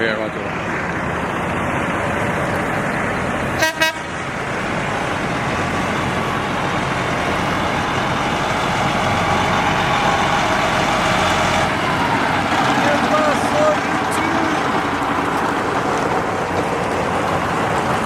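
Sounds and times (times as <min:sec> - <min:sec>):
truck running: 0:00.0 - 0:18.0
truck horn toots: 0:03.6 - 0:04.1.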